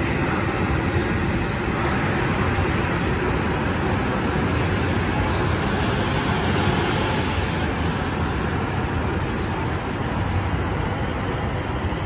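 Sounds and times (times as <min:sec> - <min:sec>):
train running past platform: 0:00.0 - 0:12.0
train wheels and air noise: 0:00.0 - 0:12.0.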